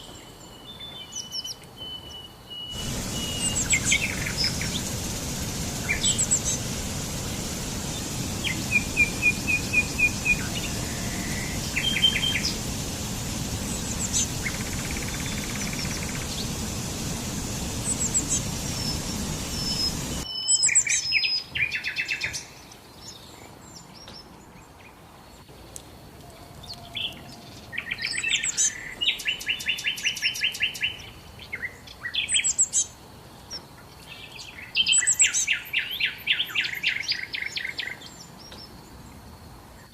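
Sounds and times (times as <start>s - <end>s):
songbirds singing: 0.0s - 25.5s, 26.2s - 39.2s
steady rushing background noise: 2.8s - 20.3s.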